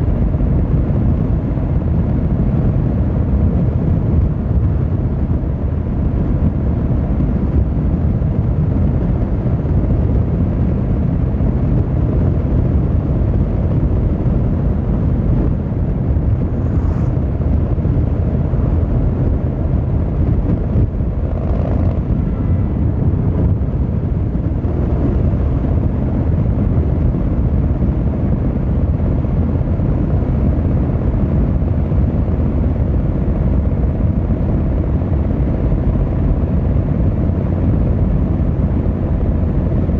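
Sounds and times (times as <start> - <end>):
motorcycle engine rumbling: 3.4 - 29.3.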